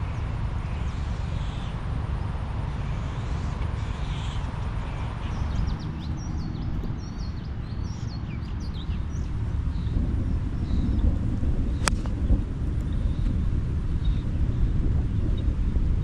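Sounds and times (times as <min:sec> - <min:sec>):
steady low rumble: 0:00.0 - 0:16.0
bird singing sliding chirps: 0:02.7 - 0:13.4.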